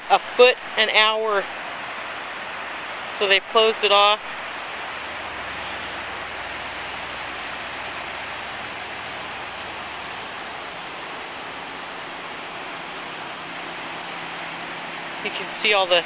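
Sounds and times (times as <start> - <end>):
floodwater rushing in river: 0.0 - 16.0.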